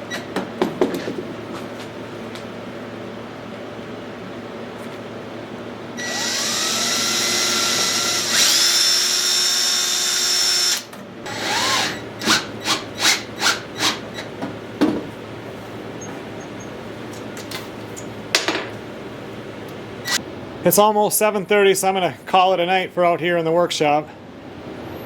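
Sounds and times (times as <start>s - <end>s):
electric drill spinning: 6.0s - 14.3s.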